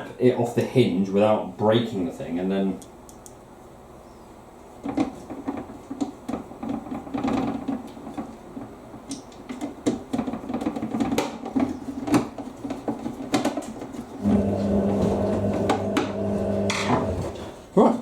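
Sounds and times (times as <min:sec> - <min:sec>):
plastic parts clicking and knocking: 0:04.8 - 0:14.1.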